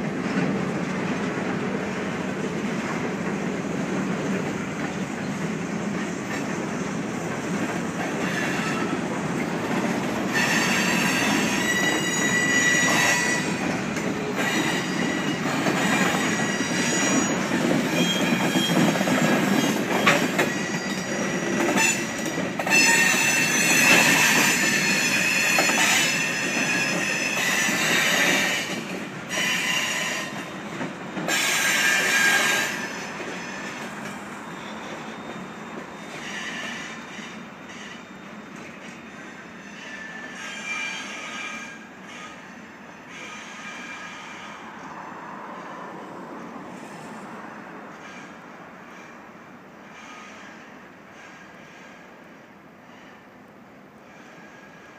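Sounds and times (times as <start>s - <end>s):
freight train rumbling past: 0.0s - 54.9s
train wheels squealing: 8.0s - 45.7s, 47.9s - 52.2s, 52.8s - 53.4s, 54.0s - 54.9s.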